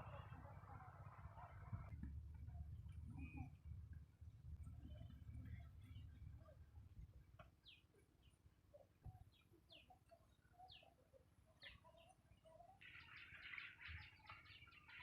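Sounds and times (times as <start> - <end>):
bird chirping: 7.6 - 15.0
birds chattering: 7.6 - 15.0.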